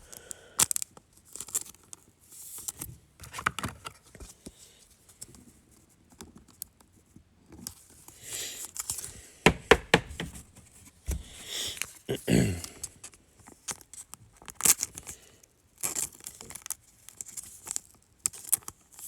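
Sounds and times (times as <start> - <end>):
sharp knocks on table: 9.5 - 10.4.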